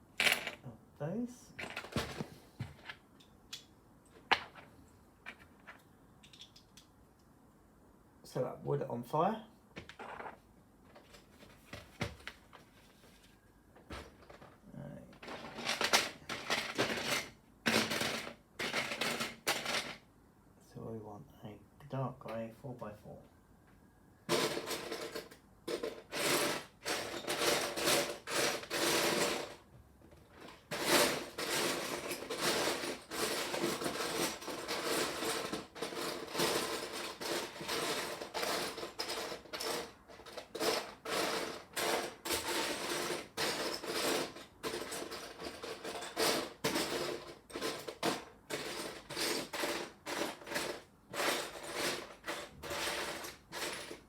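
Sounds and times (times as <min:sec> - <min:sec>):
plastic bricks clattering: 0:15.2 - 0:20.0, 0:30.2 - 0:54.0.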